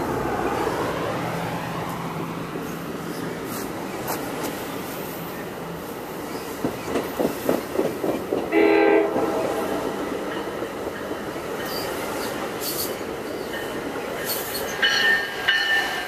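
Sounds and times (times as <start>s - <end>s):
train coaches rumbling past: 0.0s - 16.0s
train horn blast: 8.5s - 10.0s.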